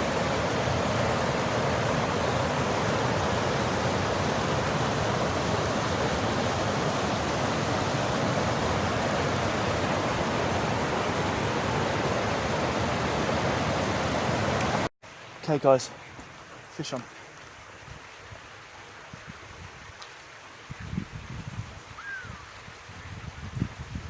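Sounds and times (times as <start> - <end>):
river water rushing: 0.0 - 17.8.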